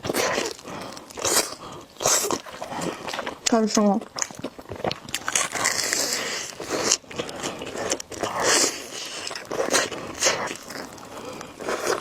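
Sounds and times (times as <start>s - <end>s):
chewing noodles: 0.0s - 12.0s.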